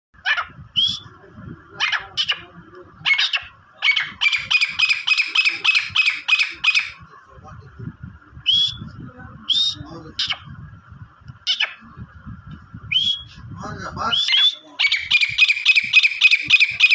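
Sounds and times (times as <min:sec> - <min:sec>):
partridge calling harshly: 0:01.8 - 0:07.0, 0:09.6 - 0:10.5, 0:11.4 - 0:11.8, 0:14.1 - 0:16.9.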